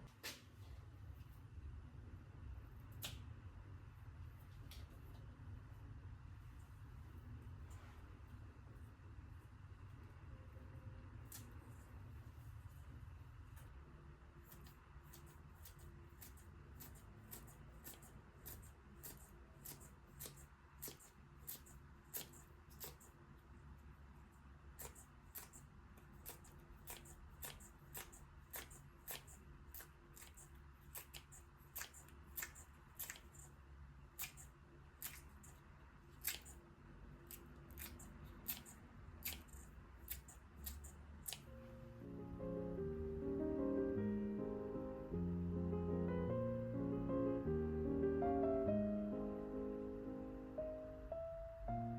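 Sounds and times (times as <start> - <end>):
knife cutting food clicks: 14.5 - 23.1, 24.8 - 33.5, 36.2 - 36.6, 37.2 - 41.5.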